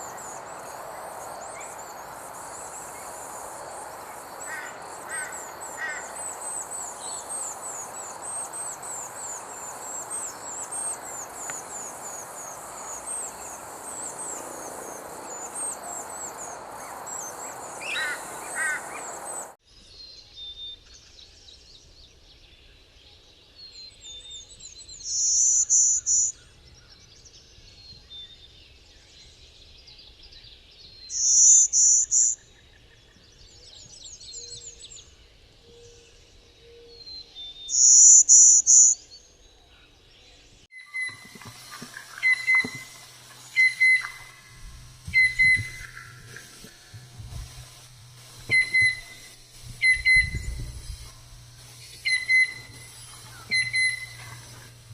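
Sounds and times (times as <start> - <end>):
high trilled bird phrase: 0.0 - 19.6, 42.0 - 54.8
short repeated bird calls: 0.0 - 19.6, 40.8 - 54.9
soft bird chirps: 0.0 - 19.6, 40.8 - 54.9.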